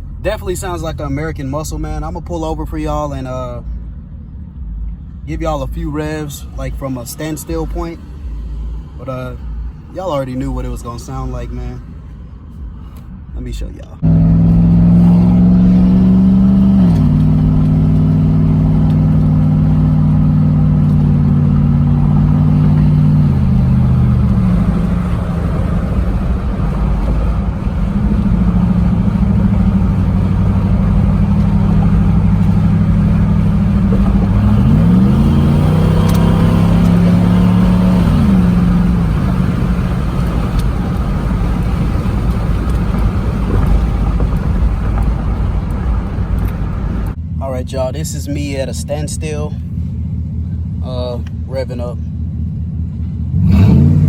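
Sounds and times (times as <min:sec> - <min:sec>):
loud vee-eight exhaust droning: 0:14.0 - 0:54.0.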